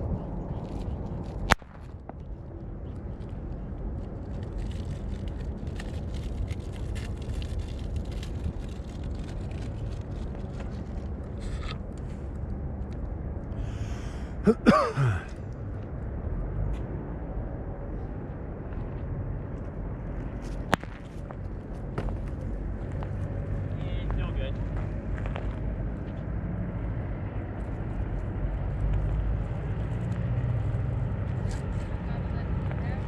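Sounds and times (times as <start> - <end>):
faint crackles: 0.0 - 14.2
low wind rumble: 0.0 - 33.0.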